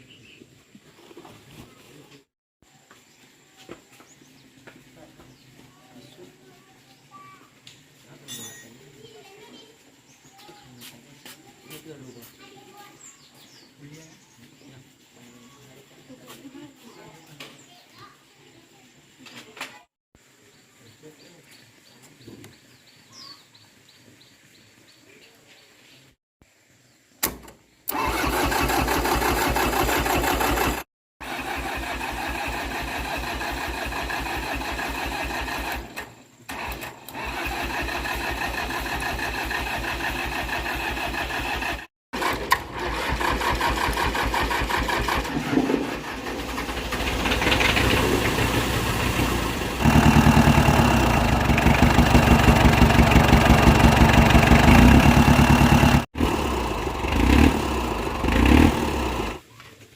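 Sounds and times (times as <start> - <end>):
tractor engine running: 27.9 - 59.4.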